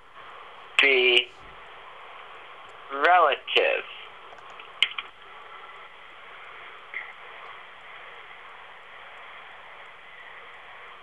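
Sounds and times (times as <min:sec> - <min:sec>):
recording hiss: 0:00.0 - 0:11.0
sharp click: 0:04.3 - 0:05.1.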